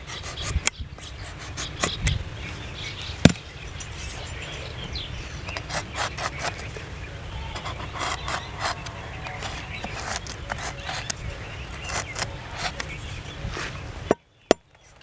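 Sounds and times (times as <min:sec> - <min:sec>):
knife scraping wood: 0:00.0 - 0:02.2, 0:05.5 - 0:06.8, 0:07.4 - 0:13.8
birds chirping: 0:00.0 - 0:15.0.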